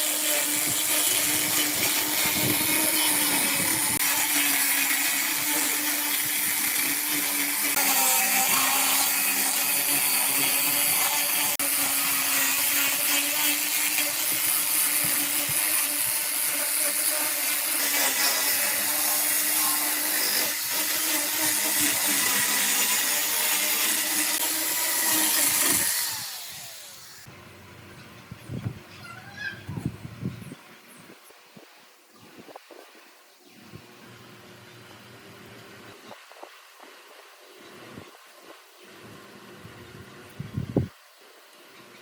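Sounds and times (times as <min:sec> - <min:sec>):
electric power tool on wood: 0:00.0 - 0:27.3
motor winding down: 0:12.6 - 0:27.3.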